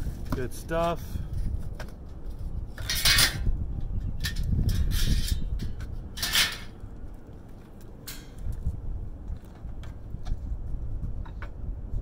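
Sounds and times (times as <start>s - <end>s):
scrap metal clinking: 4.8s - 6.8s.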